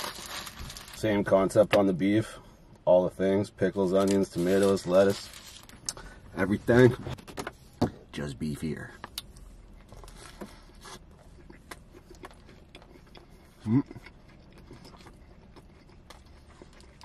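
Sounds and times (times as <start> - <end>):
person chewing food: 9.0 - 17.0.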